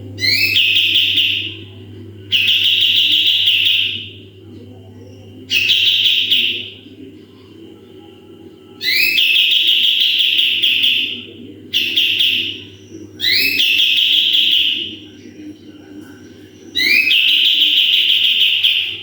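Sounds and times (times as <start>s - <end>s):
steady low hum: 0.0s - 19.0s
songbird sharp calls: 8.8s - 14.9s.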